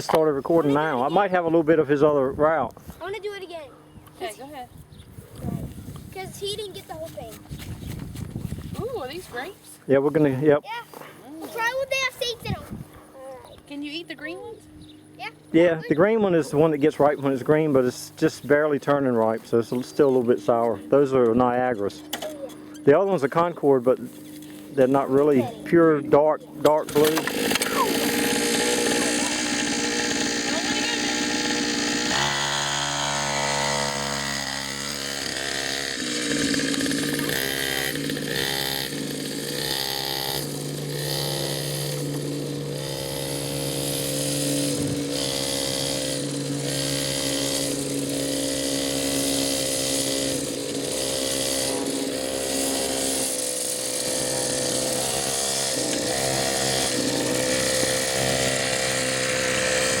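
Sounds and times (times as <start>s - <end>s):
dirt bike engine revving: 15.2s - 60.0s.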